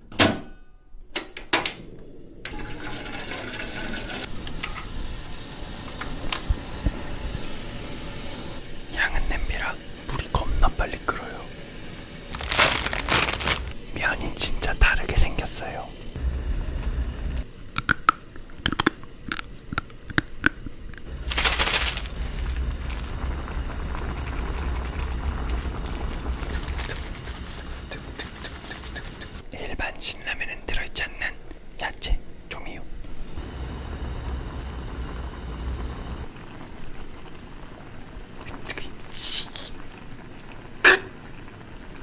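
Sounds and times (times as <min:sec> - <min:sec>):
gas burner hissing: 0:01.1 - 0:42.0
dry noodles cracking and snapping: 0:12.3 - 0:13.8, 0:17.7 - 0:29.2
loud rustling: 0:12.3 - 0:13.8, 0:21.1 - 0:29.5.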